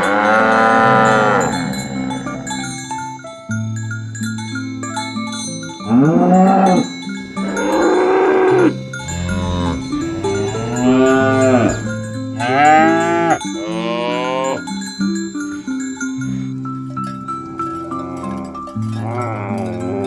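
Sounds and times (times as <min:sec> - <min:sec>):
cows mooing: 0:00.0 - 0:02.8, 0:05.9 - 0:14.7, 0:17.4 - 0:20.0
glockenspiel-like background music: 0:00.0 - 0:20.0.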